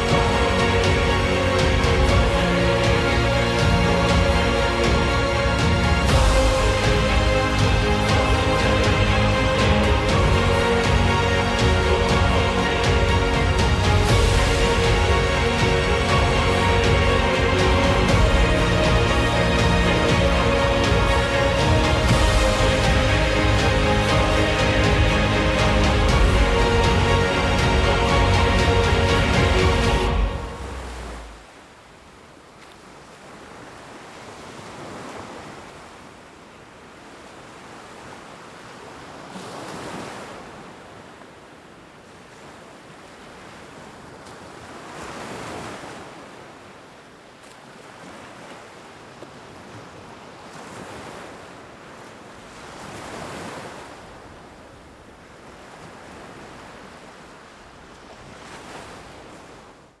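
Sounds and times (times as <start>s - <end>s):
ocean waves washing in: 0.0s - 60.0s.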